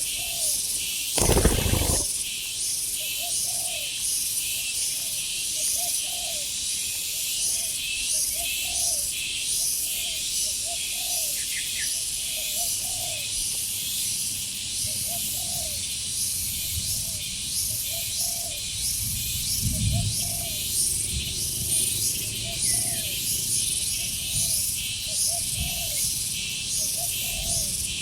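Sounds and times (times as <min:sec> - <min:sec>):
dove cooing: 0:01.2 - 0:02.1
pulsing insect drone: 0:01.2 - 0:02.2.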